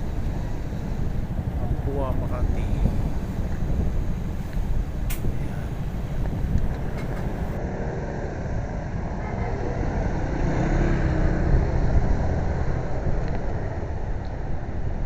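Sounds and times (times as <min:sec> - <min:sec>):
wind buffeting microphone: 0:00.0 - 0:07.6
faint vehicle engines: 0:00.0 - 0:15.0.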